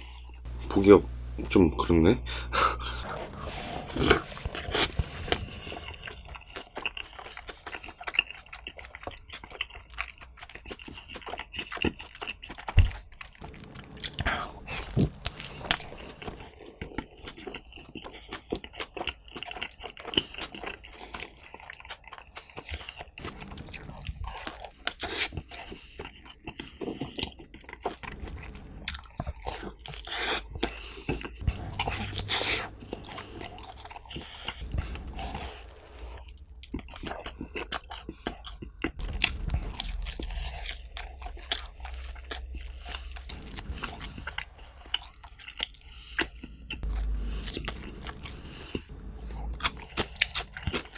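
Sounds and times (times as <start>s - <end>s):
chewing pizza: 0.0s - 50.9s
crust crunching: 0.1s - 7.9s, 12.9s - 16.9s, 31.4s - 50.9s.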